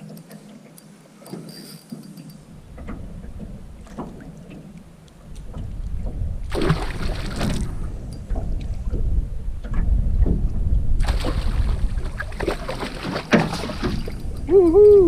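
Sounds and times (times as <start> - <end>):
water splashing against canoe: 0.0 - 14.6
low rumble: 5.3 - 12.4.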